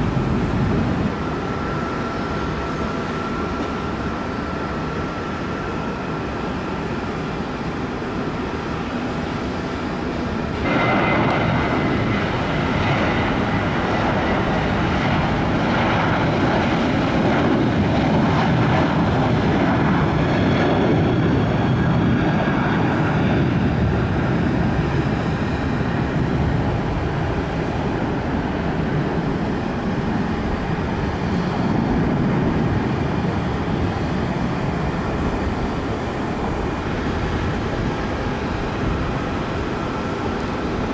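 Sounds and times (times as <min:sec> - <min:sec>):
airliner engines rumbling: 0:00.0 - 0:40.9.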